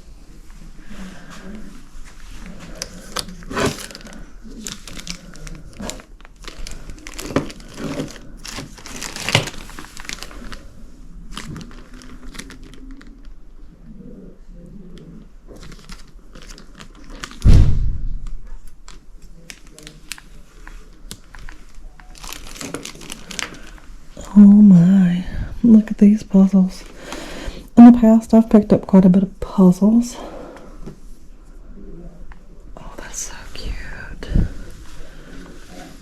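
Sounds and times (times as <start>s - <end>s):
items crinkling and rustling: 0.0s - 31.4s, 32.3s - 36.0s
loud thump: 17.4s - 18.6s.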